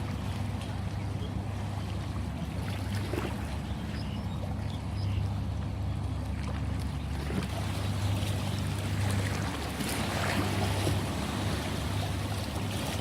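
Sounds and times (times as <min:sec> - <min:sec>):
sea waves washing: 0:05.7 - 0:13.0.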